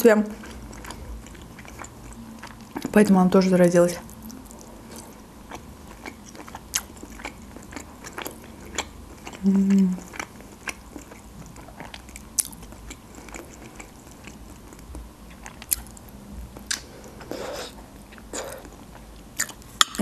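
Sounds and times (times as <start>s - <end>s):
soft wet chewing: 0.3s - 3.0s, 4.0s - 20.0s
smacking bite: 16.6s - 18.8s.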